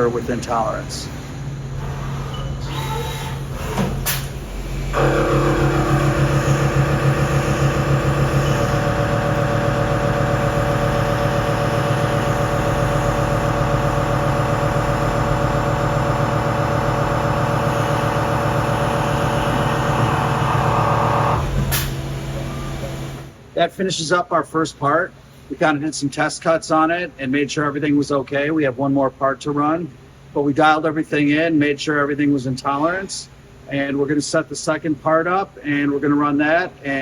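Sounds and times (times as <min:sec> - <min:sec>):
machine hum: 0:04.3 - 0:23.5
milling cutter whine: 0:04.8 - 0:23.3.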